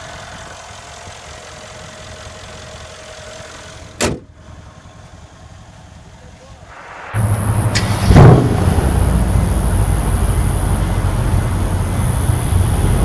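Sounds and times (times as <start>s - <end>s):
car engine idling with whine: 0.0s - 13.0s
sharp thump: 6.7s - 9.6s.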